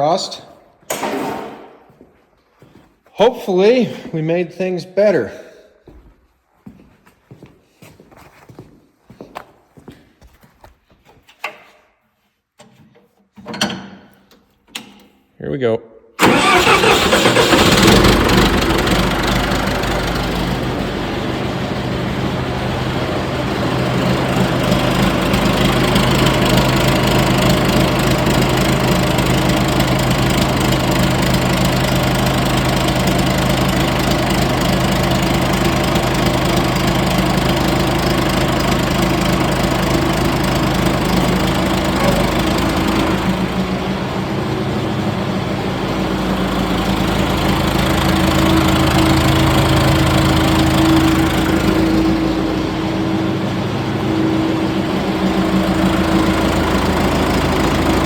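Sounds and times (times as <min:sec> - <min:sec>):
bulldozer diesel engine running: 0:16.2 - 0:58.0.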